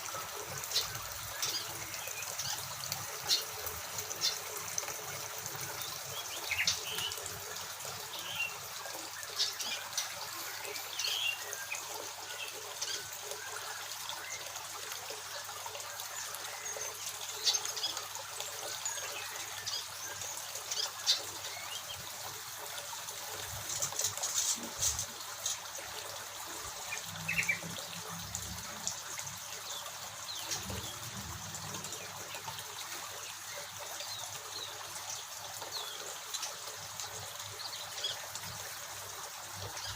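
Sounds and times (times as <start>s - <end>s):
running water trickling: 0.0s - 39.9s
birds chirping: 5.6s - 7.5s.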